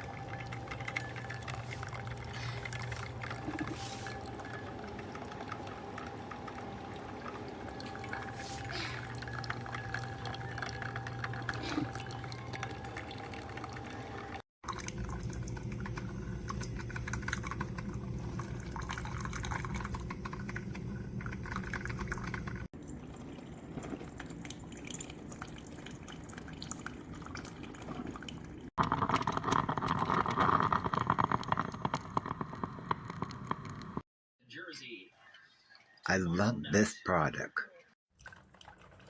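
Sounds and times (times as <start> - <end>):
liquid dripping and trickling: 0.0 - 28.8, 38.1 - 39.0.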